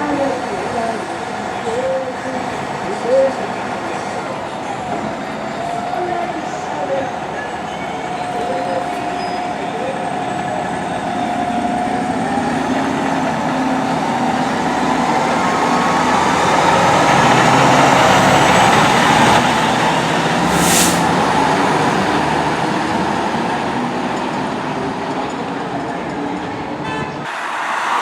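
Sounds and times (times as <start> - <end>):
fire truck driving past: 0.0 - 25.0
short sharp hiss: 20.4 - 21.2.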